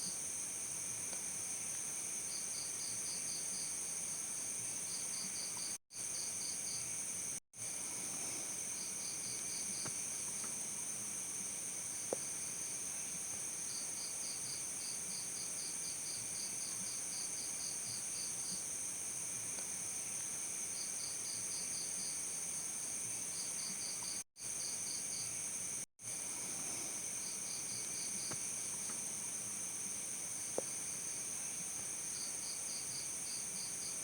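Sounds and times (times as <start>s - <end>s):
cricket chirping: 19.9s - 34.0s.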